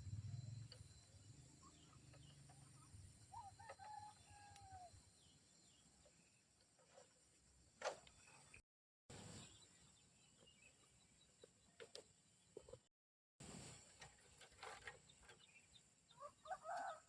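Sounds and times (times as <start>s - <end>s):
rooster crowing: 3.3s - 4.9s, 16.2s - 17.0s.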